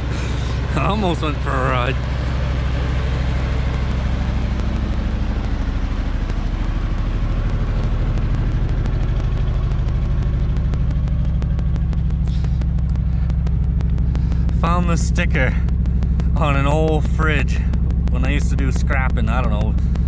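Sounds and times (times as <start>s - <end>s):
truck engine running steadily: 0.0s - 20.0s.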